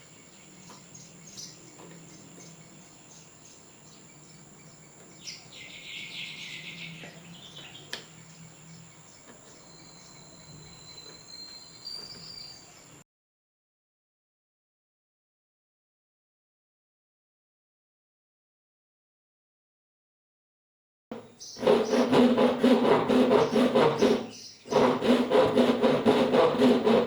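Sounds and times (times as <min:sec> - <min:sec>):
bird chirps and calls: 0:00.0 - 0:13.0, 0:21.3 - 0:21.9, 0:23.4 - 0:24.8.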